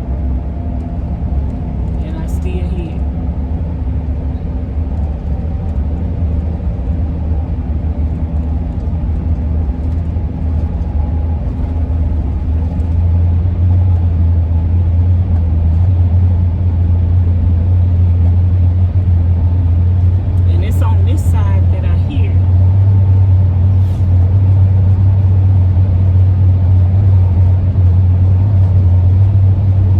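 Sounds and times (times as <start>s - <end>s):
van engine and road rumble: 0.0s - 29.9s
wind howling across roof rack: 3.1s - 14.7s.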